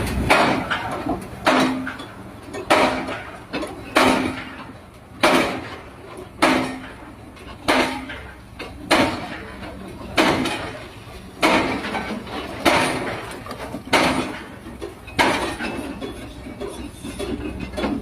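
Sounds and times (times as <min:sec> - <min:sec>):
heavy impacts: 0:00.0 - 0:10.8.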